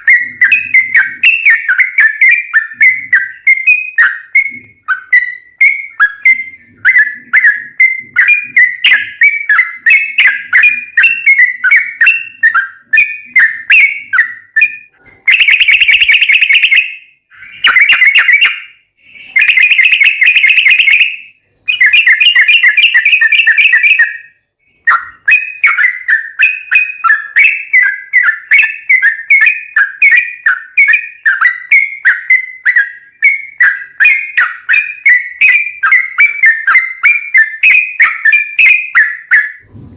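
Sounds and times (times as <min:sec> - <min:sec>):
bird whistled notes: 0:00.0 - 0:39.6.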